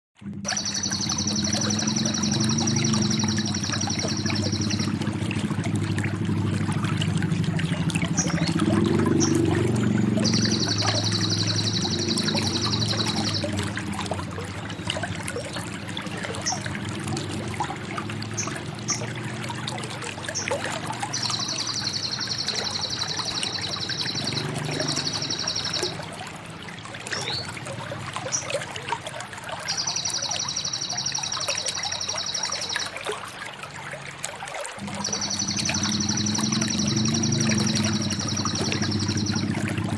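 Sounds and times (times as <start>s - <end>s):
pouring trickling water: 0.2s - 39.9s
bird singing a high fast trill: 0.5s - 5.1s, 8.1s - 13.7s, 20.4s - 26.0s, 27.1s - 27.5s, 29.7s - 33.0s, 34.8s - 39.9s.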